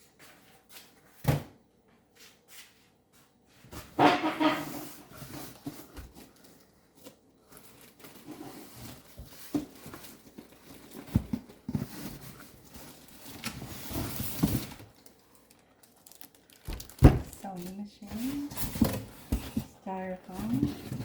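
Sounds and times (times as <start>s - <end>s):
styrofoam and cardboard rubbing: 3.7s - 6.4s, 16.7s - 21.0s.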